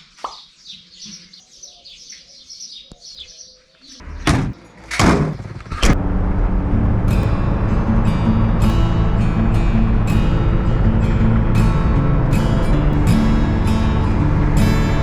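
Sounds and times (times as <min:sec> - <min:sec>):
small birds chirping: 0:00.0 - 0:04.0
diesel engine running: 0:05.4 - 0:15.0.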